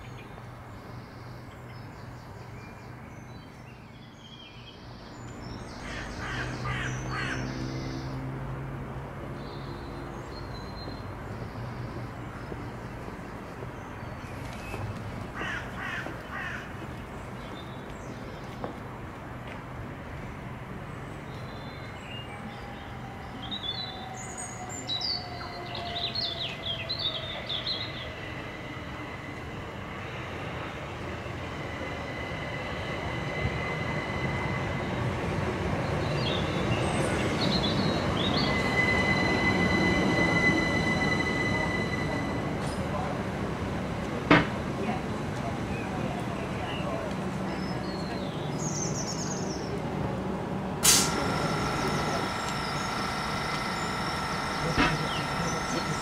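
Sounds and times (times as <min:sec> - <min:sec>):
electric train rumble: 0:04.7 - 0:56.0
high-pitched whine: 0:51.0 - 0:56.0.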